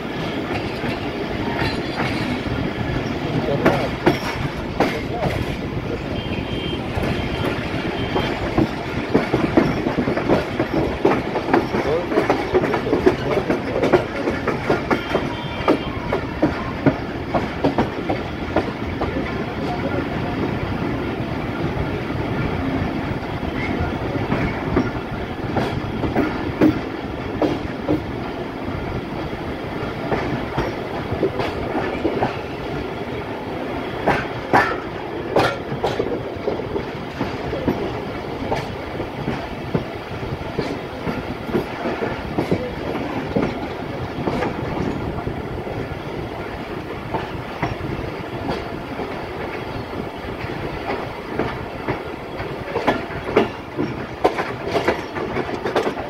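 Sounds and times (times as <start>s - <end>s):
train coach rumbling: 0.0s - 56.0s
wheels clattering over rail joints: 0.3s - 20.0s, 33.6s - 56.0s.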